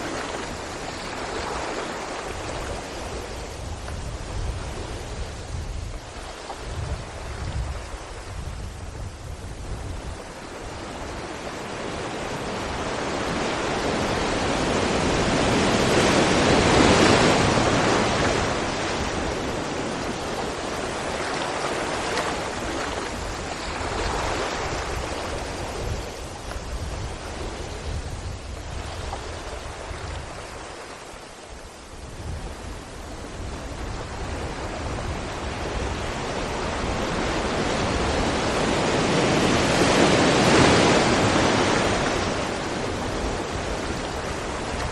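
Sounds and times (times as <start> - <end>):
sea waves breaking against rocks: 11.1 - 30.9, 34.7 - 44.9.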